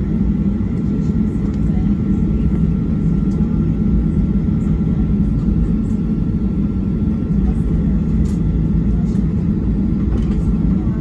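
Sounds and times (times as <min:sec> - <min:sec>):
aircraft low rumble: 0:00.0 - 0:11.0.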